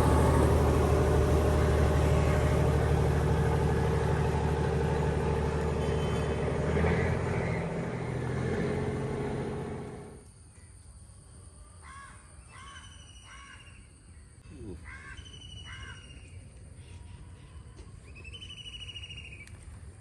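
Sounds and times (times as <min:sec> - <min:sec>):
birds chirping: 0:00.0 - 0:08.2
vehicle engine: 0:00.0 - 0:10.2
crows cawing: 0:14.8 - 0:16.1.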